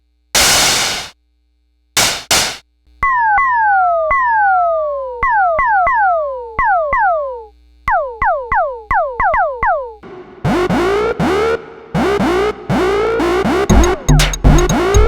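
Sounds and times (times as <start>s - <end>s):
electronic drum hits: 0.4s - 1.1s, 2.0s - 2.6s, 13.7s - 15.0s.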